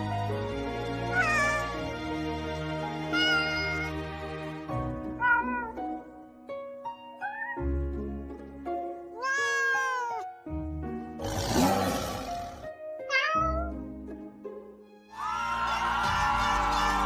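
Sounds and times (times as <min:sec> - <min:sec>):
background music: 0:00.0 - 0:17.0
cat meowing: 0:01.1 - 0:01.8, 0:03.1 - 0:04.0, 0:05.2 - 0:05.9, 0:07.2 - 0:07.8, 0:09.2 - 0:10.4, 0:13.1 - 0:13.7.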